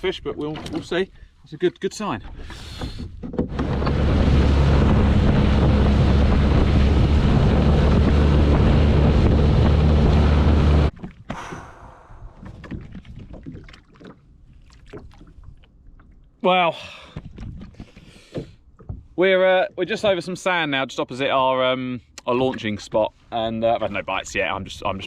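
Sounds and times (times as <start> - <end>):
outboard motor running: 2.3 - 13.8.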